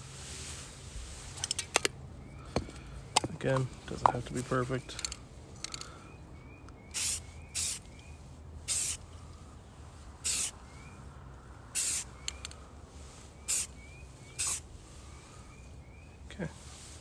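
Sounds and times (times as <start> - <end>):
aerosol spray can hissing: 7.0 - 7.9, 8.7 - 9.0, 10.2 - 10.6, 11.8 - 12.5, 13.5 - 13.7, 14.4 - 14.7.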